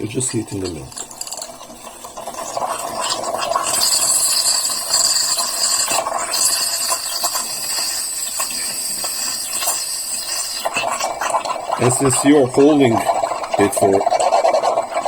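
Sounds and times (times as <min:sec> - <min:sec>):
steam wand hissing into milk: 0:00.0 - 0:15.0.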